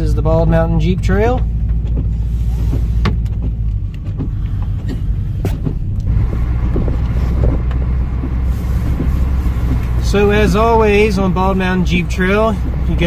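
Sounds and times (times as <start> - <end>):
off-road vehicle rumble: 0.0 - 13.0
knocks and rattles from vehicle body: 0.1 - 13.0.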